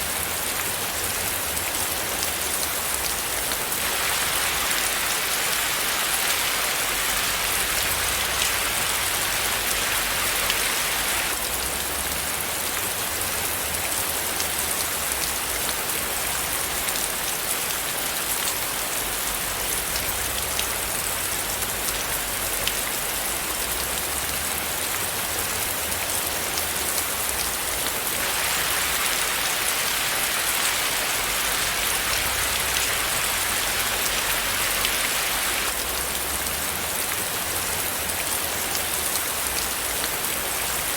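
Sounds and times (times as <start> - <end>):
rain patter: 0.0 - 40.9.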